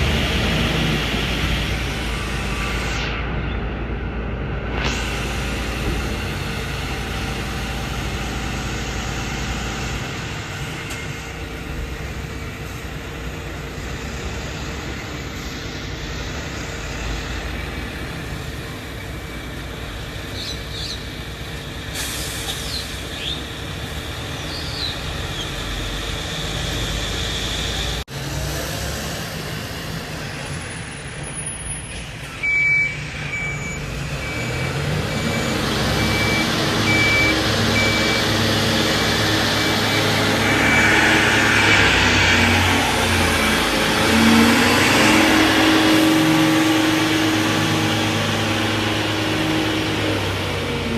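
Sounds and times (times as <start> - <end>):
diesel garbage trucks rumbling: 0.0 - 50.9
truck reversing alarm beeping: 31.4 - 50.9.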